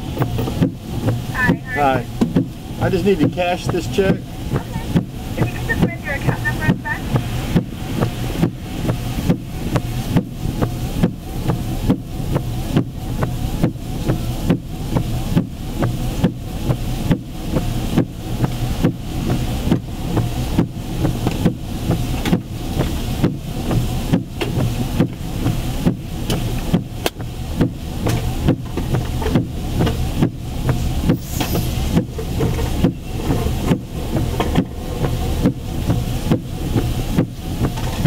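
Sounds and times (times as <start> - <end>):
engine idling: 0.0 - 38.0
heavy rain on a car: 0.0 - 38.0.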